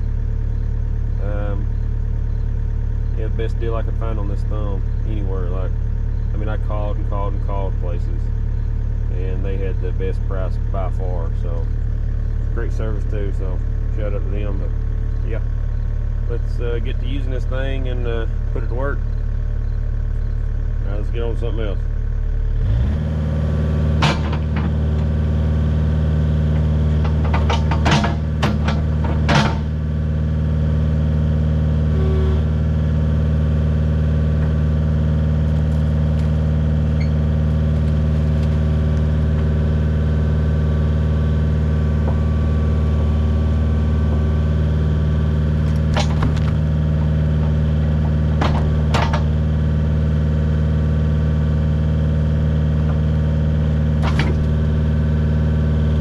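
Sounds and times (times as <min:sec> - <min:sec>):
diesel engine running: 0:00.0 - 0:56.0
sharp knocks: 0:24.0 - 0:25.2, 0:26.5 - 0:29.9, 0:45.7 - 0:49.4, 0:54.0 - 0:54.8.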